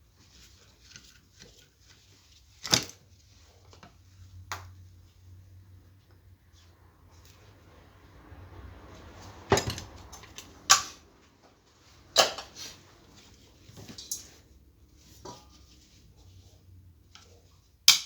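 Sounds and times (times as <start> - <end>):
metal parts and tools clinking: 13.7 - 14.4.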